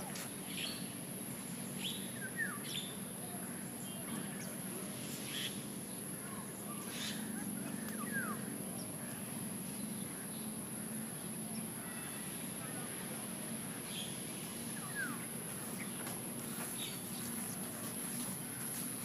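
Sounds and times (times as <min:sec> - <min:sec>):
steady low background hum: 0:00.0 - 0:19.0
birds chirping: 0:05.3 - 0:12.9, 0:13.7 - 0:19.0.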